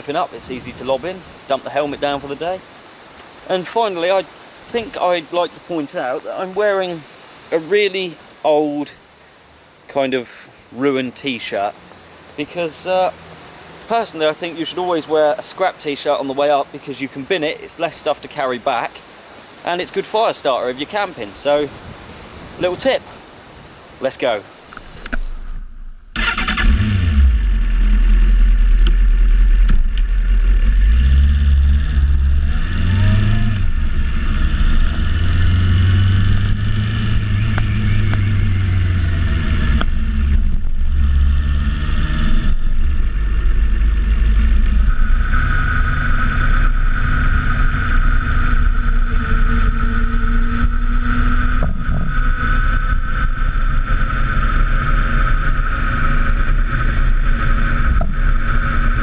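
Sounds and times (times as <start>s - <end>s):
wind and road noise: 0.0s - 59.0s
motorcycle accelerating: 25.1s - 59.0s.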